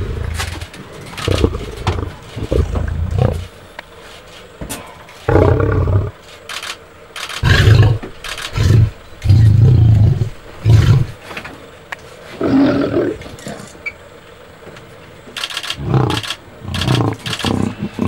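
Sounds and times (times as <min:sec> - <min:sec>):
lion roaring and growling: 0:00.0 - 0:03.6, 0:05.3 - 0:06.2, 0:07.4 - 0:11.2, 0:12.4 - 0:13.6, 0:15.8 - 0:18.0.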